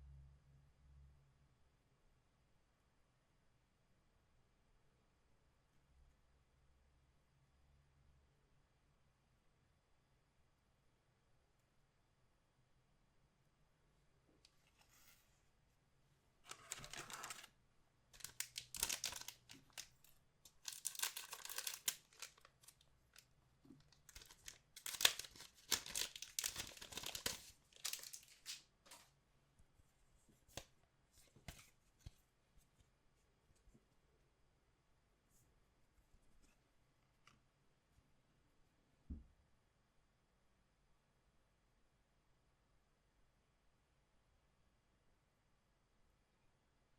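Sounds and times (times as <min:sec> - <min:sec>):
wrapper tearing and crinkling: 0:16.5 - 0:17.5, 0:18.2 - 0:22.8, 0:23.9 - 0:28.6.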